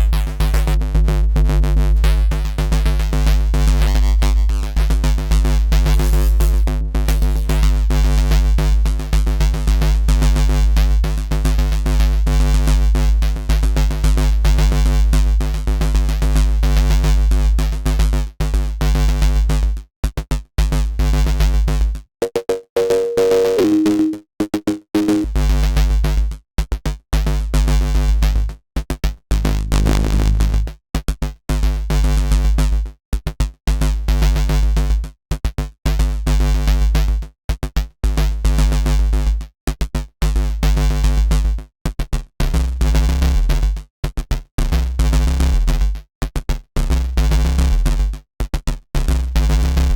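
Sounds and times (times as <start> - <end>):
synth bass riff: 29.3 - 30.8
higher two-note tone: 29.4 - 30.7.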